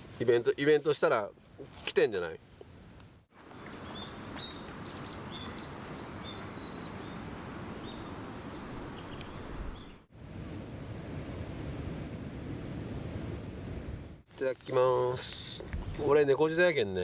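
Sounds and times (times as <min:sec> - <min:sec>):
small birds chirping: 0:03.4 - 0:07.2.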